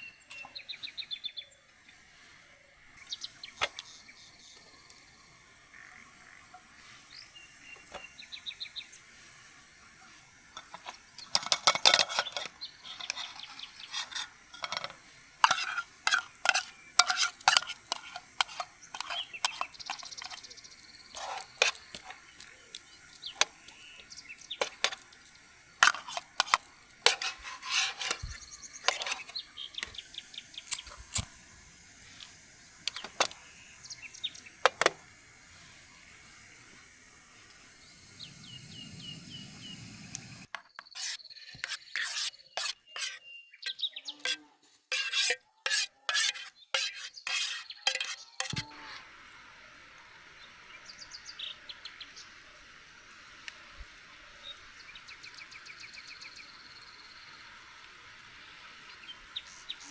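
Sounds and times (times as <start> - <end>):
bird chirping: 0.0 - 1.7, 3.0 - 5.0, 5.7 - 9.0, 10.6 - 26.5, 27.2 - 31.3, 32.6 - 34.8, 37.6 - 45.2, 46.4 - 48.9, 50.4 - 52.5, 54.4 - 57.4, 58.4 - 59.9
metal utensil scraping cookware: 10.6 - 22.5, 23.2 - 30.0, 32.9 - 33.4, 40.6 - 49.0.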